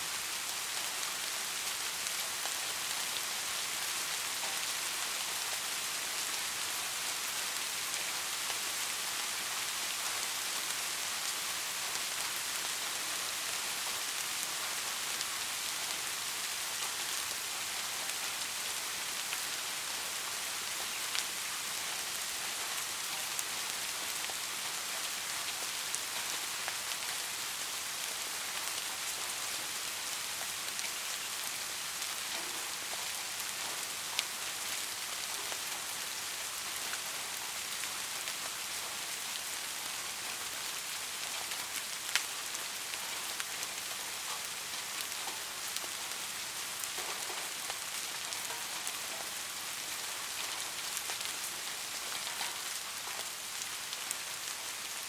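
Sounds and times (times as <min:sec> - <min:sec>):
steady rain hiss: 0:00.0 - 0:55.0
raindrops landing close: 0:46.8 - 0:49.6, 0:50.4 - 0:53.7.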